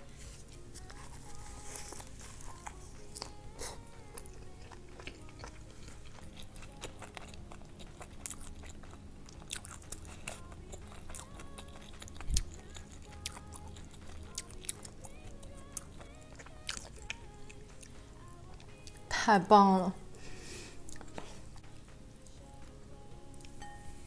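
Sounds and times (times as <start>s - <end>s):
wet chewing with crunches: 0.4s - 19.1s, 20.8s - 22.7s.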